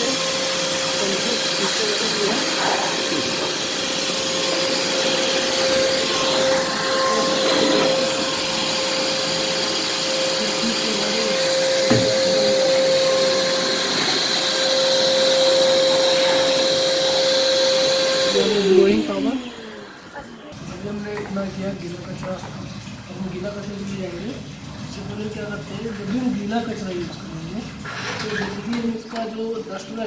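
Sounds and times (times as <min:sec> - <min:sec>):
vacuum cleaner blowing air: 0:00.0 - 0:20.6
short knock: 0:11.9 - 0:12.2.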